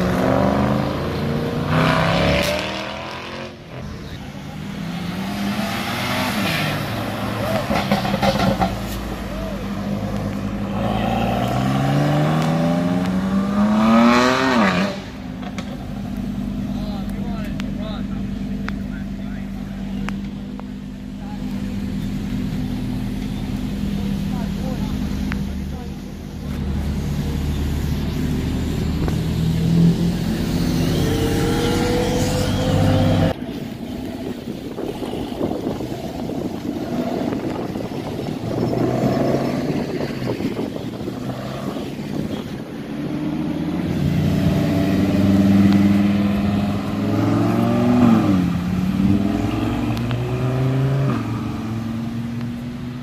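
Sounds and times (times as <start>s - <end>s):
car engines accelerating: 0.0s - 53.0s.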